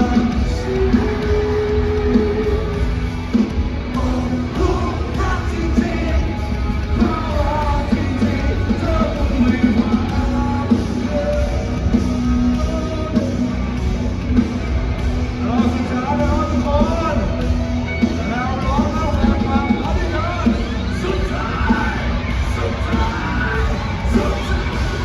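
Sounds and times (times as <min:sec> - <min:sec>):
person singing: 0:00.0 - 0:03.1, 0:03.9 - 0:14.1
live rock band playing: 0:00.0 - 0:25.0.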